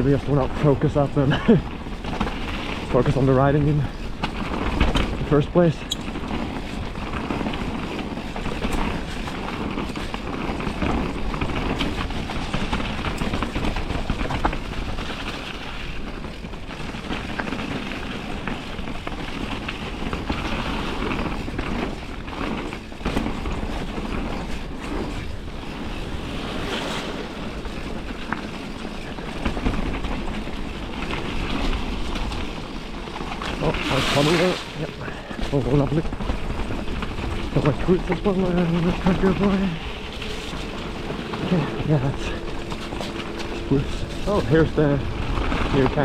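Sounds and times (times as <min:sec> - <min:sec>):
bike rattling over bumps: 0:00.0 - 0:46.0
wind buffeting microphone: 0:00.0 - 0:46.0
tyres rushing through mud: 0:32.4 - 0:46.0.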